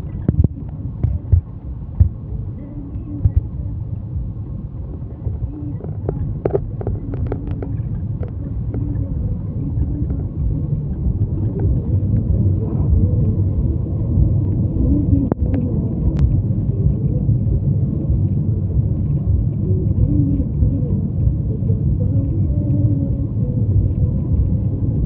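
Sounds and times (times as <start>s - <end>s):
vehicle engine and road noise: 0.0s - 25.0s.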